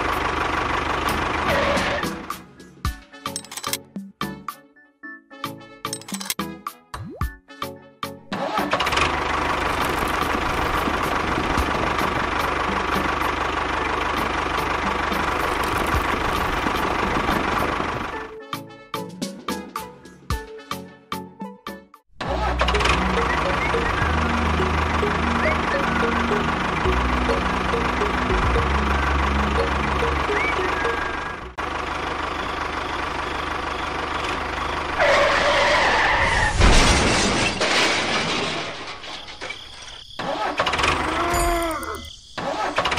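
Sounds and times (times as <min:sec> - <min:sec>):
tractor engine chugging: 0:00.0 - 0:02.8, 0:08.7 - 0:18.3, 0:22.2 - 0:35.9
toy tractor motor humming: 0:08.8 - 0:18.1.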